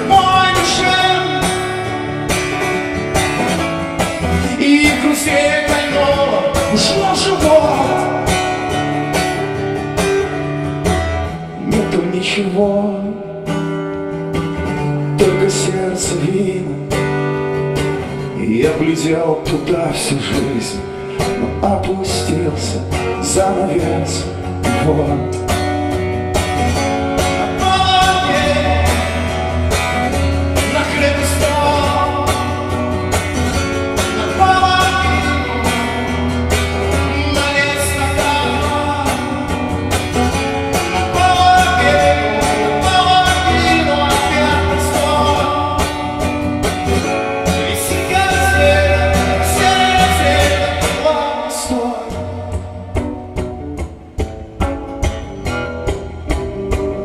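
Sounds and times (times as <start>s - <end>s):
person singing wordless melody: 0.0s - 2.0s, 4.4s - 8.4s, 11.4s - 13.4s, 27.4s - 29.5s, 34.0s - 36.2s, 36.8s - 39.8s, 40.7s - 46.3s, 47.4s - 53.0s
strummed acoustic guitar: 0.0s - 57.0s.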